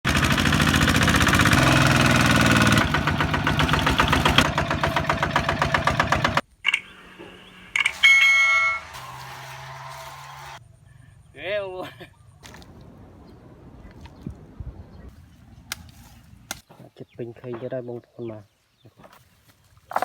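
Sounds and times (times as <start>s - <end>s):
diesel engine chugging: 0.0s - 11.2s
loud honk: 7.9s - 10.6s.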